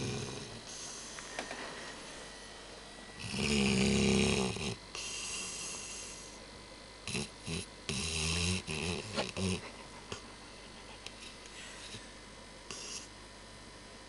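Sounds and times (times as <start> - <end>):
dog snoring: 0.0 - 1.2, 3.2 - 6.4, 7.0 - 9.7, 12.7 - 13.2.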